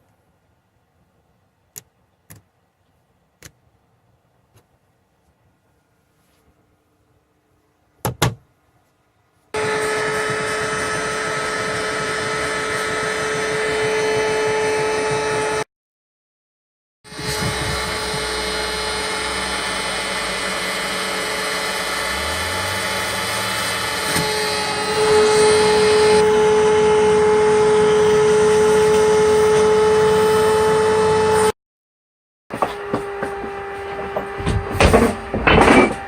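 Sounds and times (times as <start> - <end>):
electric motor whine: 9.6 - 15.7, 17.1 - 31.5
knocks and clatters: 32.6 - 36.0.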